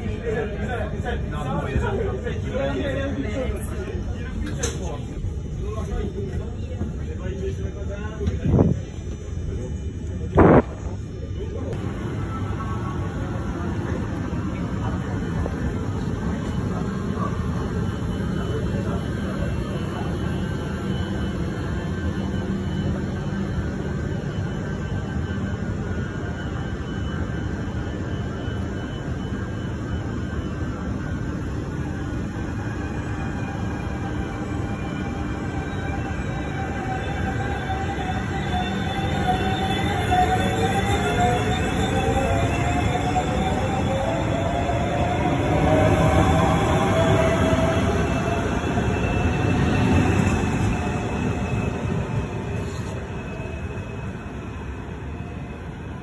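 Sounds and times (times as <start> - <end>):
electric train rumbling: 0.0 - 56.0
faint high whines: 7.5 - 56.0
high steady whine: 8.2 - 17.8.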